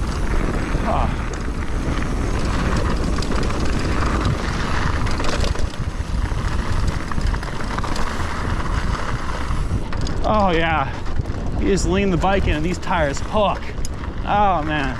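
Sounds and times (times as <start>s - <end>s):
bike rattling and knocking: 0.0s - 14.9s
wind buffeting microphone: 0.0s - 14.9s
tyres rushing over dirt: 2.4s - 13.9s.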